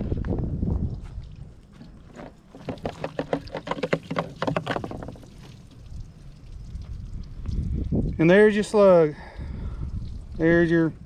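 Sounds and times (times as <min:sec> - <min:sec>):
water glugging from a plastic jug: 0:00.9 - 0:08.2.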